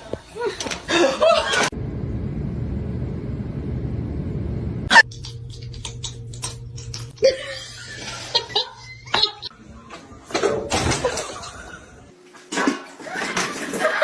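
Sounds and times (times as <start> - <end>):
person laughing: 4.9 - 9.5.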